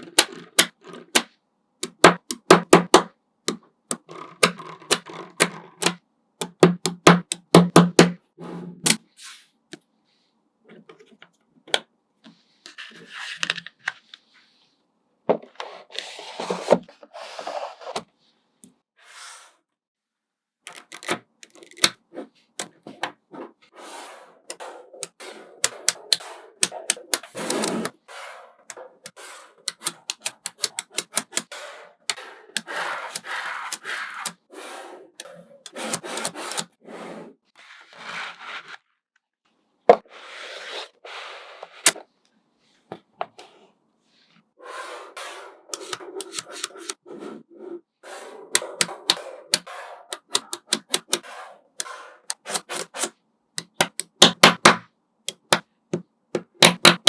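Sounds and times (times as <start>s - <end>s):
magnetic balls clicking together: 0.0s - 8.1s, 25.0s - 27.9s, 29.7s - 31.5s, 48.6s - 51.2s, 53.6s - 55.6s.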